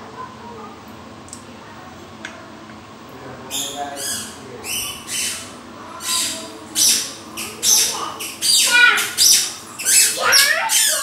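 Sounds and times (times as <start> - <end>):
bird squawking: 3.5 - 11.0.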